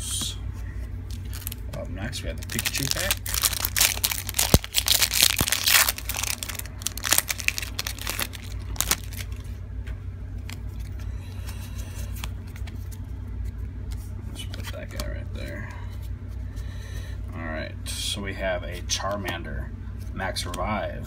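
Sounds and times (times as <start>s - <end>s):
steady low hum: 0.0s - 21.0s
foil wrapper tearing and crinkling: 1.1s - 1.6s, 2.3s - 9.4s.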